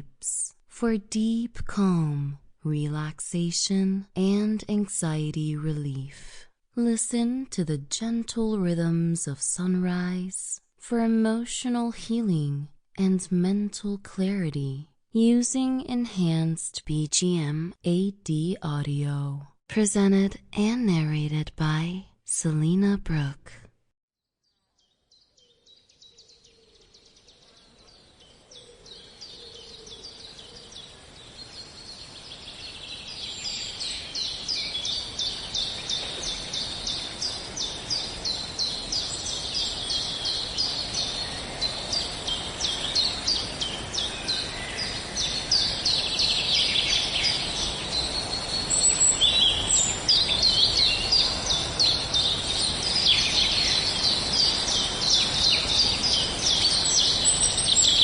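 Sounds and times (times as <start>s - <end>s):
birds chirping and trilling: 24.8s - 58.0s
outdoor background hiss: 24.8s - 58.0s.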